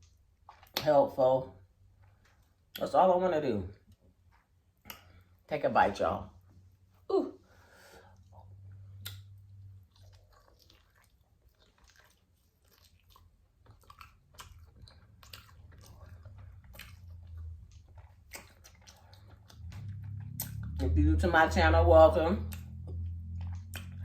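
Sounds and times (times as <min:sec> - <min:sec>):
person chewing food: 0:00.0 - 0:00.9, 0:01.6 - 0:02.8, 0:03.8 - 0:05.4, 0:07.5 - 0:21.0, 0:22.4 - 0:24.0
wet mouth clicks and smacks: 0:04.8 - 0:05.2, 0:08.9 - 0:21.0, 0:22.4 - 0:24.0.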